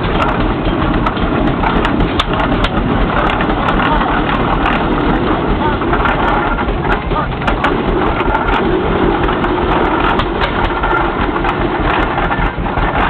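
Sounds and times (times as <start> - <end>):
steam traction engine running: 0.0 - 13.0.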